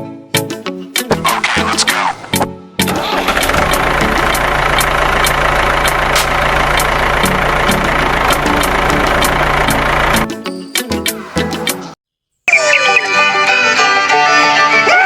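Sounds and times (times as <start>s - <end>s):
even engine ticking: 2.8s - 10.3s
small engine running: 2.9s - 10.3s.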